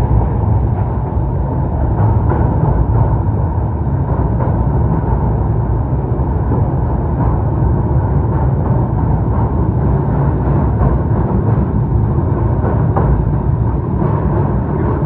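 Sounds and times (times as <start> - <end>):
train rumbling along track: 0.0 - 15.0
wind buffeting microphone: 0.0 - 15.0.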